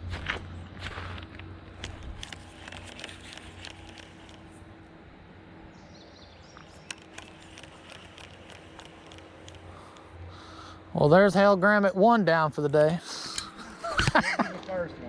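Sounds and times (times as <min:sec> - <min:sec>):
small clicks and ticks: 0:01.3 - 0:04.5, 0:06.6 - 0:10.1.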